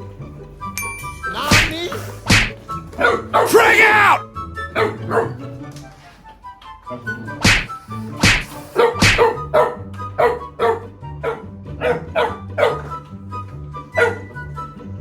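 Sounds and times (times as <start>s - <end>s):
background music: 0.0s - 15.0s
dog barking: 2.3s - 5.6s, 7.4s - 13.0s, 13.9s - 14.5s.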